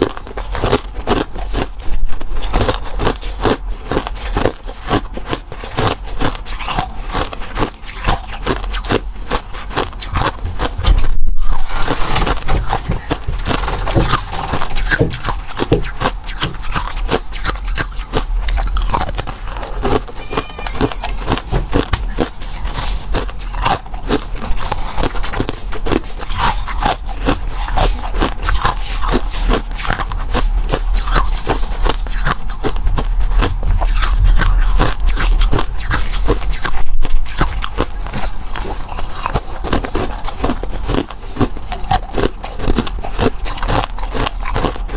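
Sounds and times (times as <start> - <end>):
crunchy chewing: 0.0 - 44.9.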